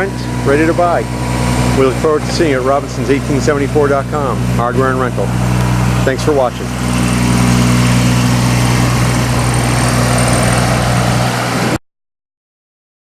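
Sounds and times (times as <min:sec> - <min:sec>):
diesel engine running: 0:00.0 - 0:11.8.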